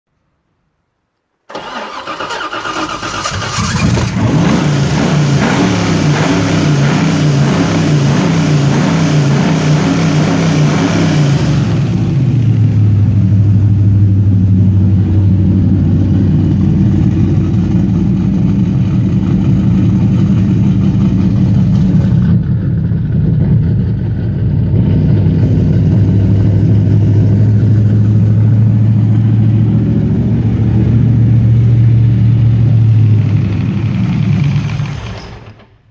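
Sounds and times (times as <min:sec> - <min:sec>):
car engine starting and idling: 0:01.5 - 0:35.9.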